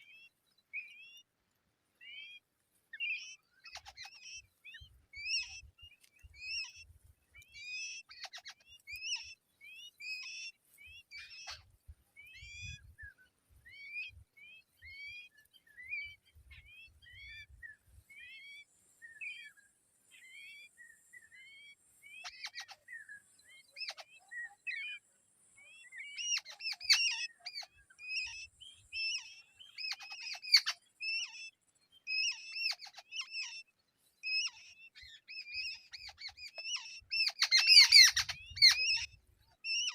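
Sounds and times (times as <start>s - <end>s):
nestling birds begging chirps: 3.0s - 18.3s, 25.6s - 39.9s.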